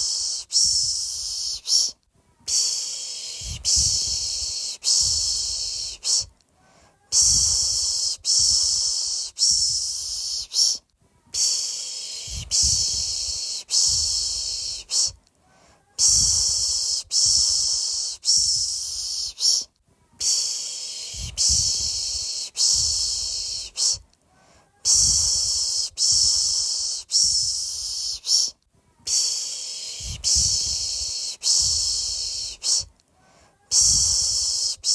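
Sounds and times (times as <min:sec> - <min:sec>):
person shushing: 0:00.0 - 0:15.2, 0:15.8 - 0:24.0, 0:24.6 - 0:32.9, 0:33.5 - 0:34.9.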